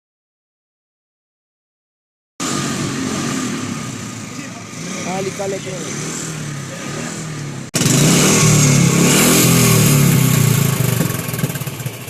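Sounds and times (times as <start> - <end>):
motorcycle engine revving: 2.4 - 12.0.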